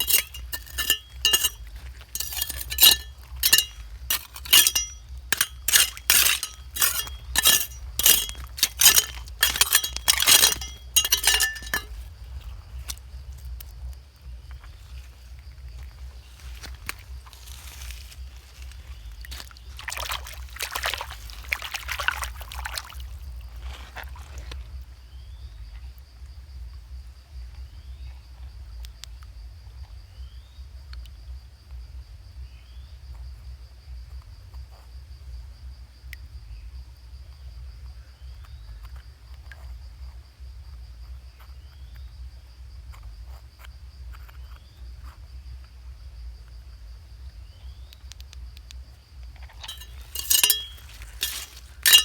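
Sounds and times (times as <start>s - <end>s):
water sloshing and trickling: 0.0s - 12.1s, 16.5s - 24.6s, 49.5s - 52.0s.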